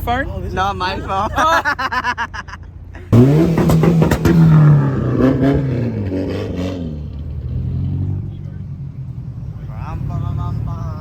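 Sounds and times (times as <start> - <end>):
car engine revving: 2.9 - 11.0.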